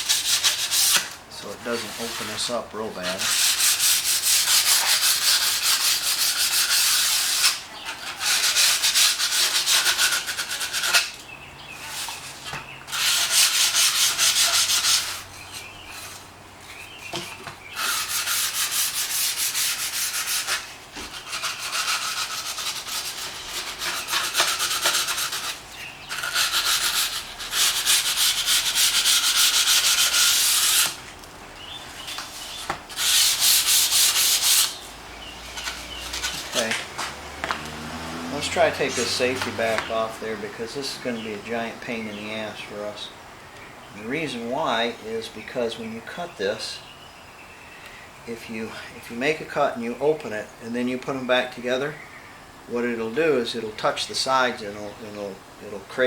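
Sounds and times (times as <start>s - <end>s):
glass edge being sanded: 0.0s - 11.2s, 11.8s - 15.2s, 17.7s - 31.0s, 31.8s - 37.2s, 38.4s - 40.1s.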